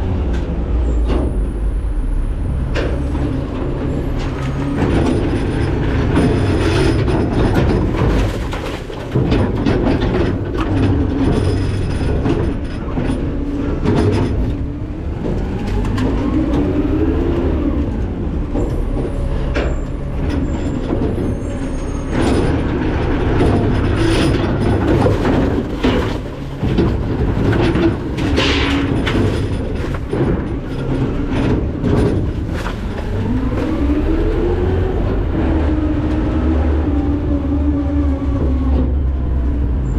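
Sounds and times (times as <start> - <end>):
metal clanking and creaking: 0.0 - 39.9
garbage truck diesel engine revving: 9.1 - 39.9.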